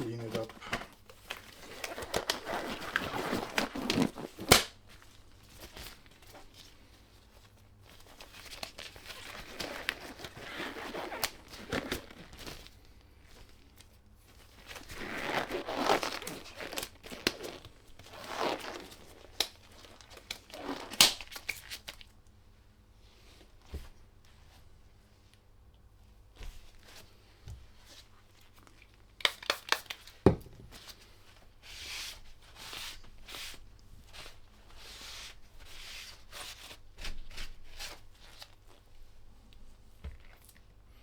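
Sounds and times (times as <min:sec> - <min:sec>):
disposable gloves crinkling: 0:00.0 - 0:22.2
glove snaps: 0:03.6 - 0:04.8, 0:18.3 - 0:22.0, 0:29.2 - 0:31.0.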